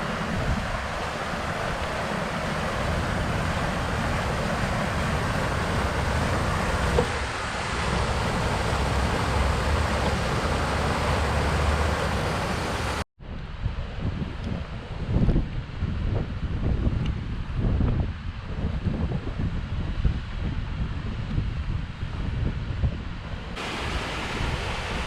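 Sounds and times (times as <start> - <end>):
outdoor rushing noise: 0.0 - 16.0.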